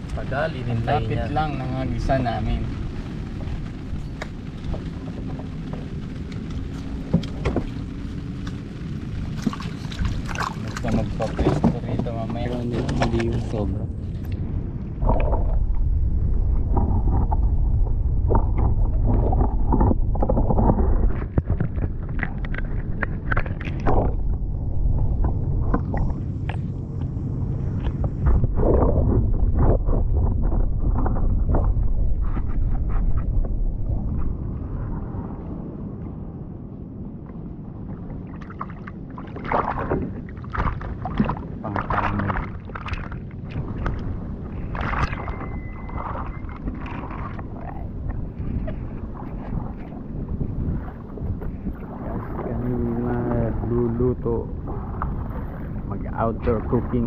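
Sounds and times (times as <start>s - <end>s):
low rumble: 0.0s - 57.0s
water sloshing and splashing: 3.1s - 35.3s, 37.2s - 57.0s
water splashing and streaming off net: 9.2s - 11.6s.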